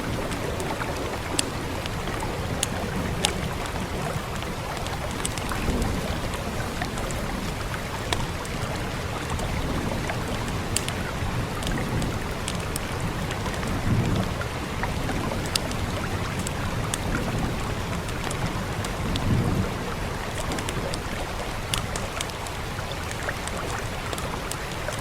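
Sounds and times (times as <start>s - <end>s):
wood fire crackling: 0.0s - 19.5s
steady rain hiss: 0.0s - 25.0s.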